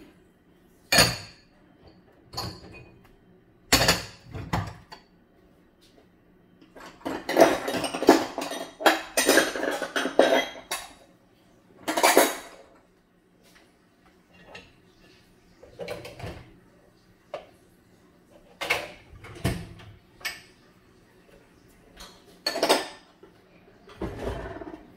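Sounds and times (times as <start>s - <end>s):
dishes and cutlery clattering: 0.9s - 3.0s, 3.7s - 5.1s, 6.6s - 11.1s, 11.8s - 12.8s, 14.3s - 16.6s, 18.5s - 20.6s, 22.0s - 24.9s.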